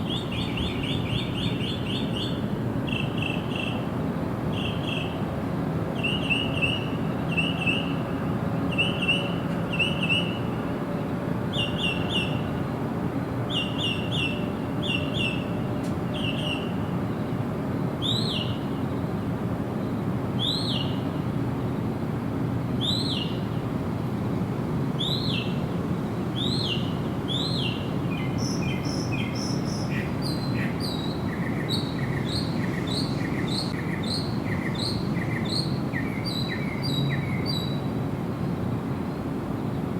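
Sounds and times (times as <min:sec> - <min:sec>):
wild birds calling: 0:26.4 - 0:37.8.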